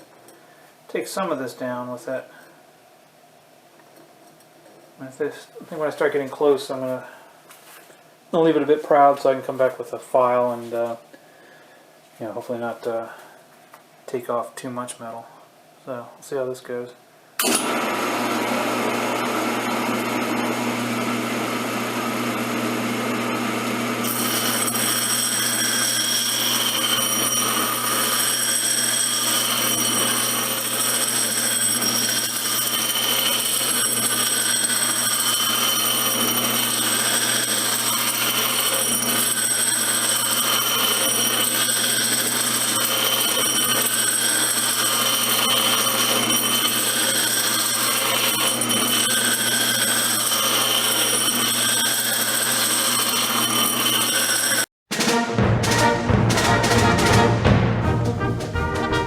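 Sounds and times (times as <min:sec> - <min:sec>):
grinder motor whining: 0:17.4 - 0:54.7.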